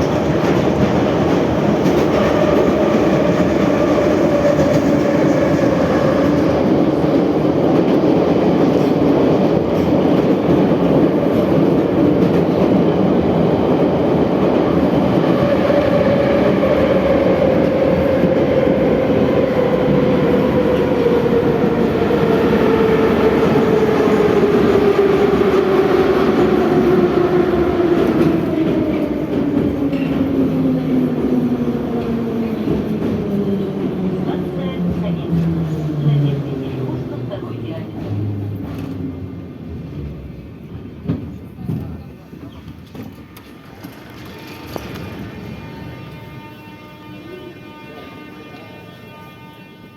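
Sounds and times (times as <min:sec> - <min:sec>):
train wheels rumbling on rails: 0:00.0 - 0:49.2.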